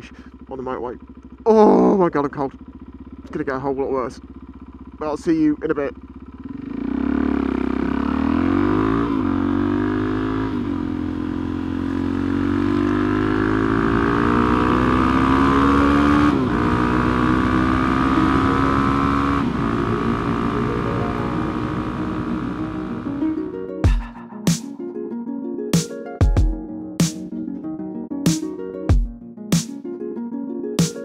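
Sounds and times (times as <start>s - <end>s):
motorcycle engine accelerating: 0.0s - 24.7s.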